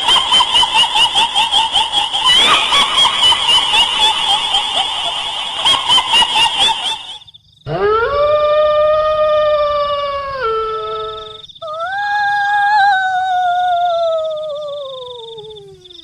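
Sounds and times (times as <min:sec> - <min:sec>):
long drawn-out howls: 0:07.7 - 0:16.0.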